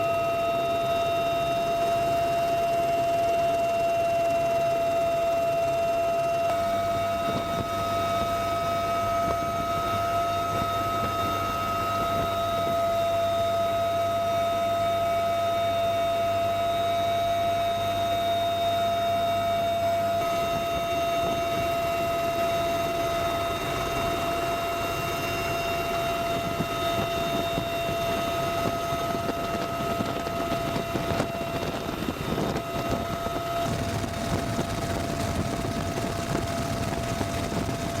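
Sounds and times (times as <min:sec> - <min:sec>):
turbine aircraft engine whine: 0:00.0 - 0:38.0
rushing noise: 0:33.6 - 0:38.0.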